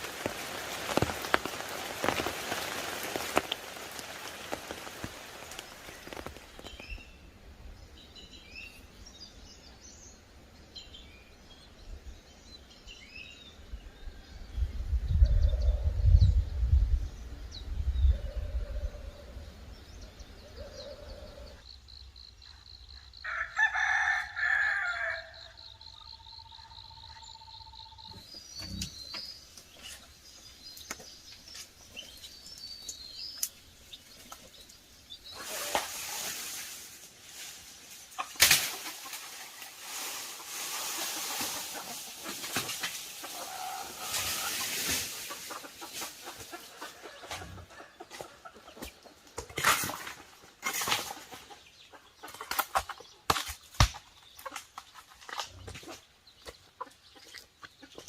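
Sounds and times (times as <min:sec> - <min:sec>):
rooster crowing: 0:23.2 - 0:25.6.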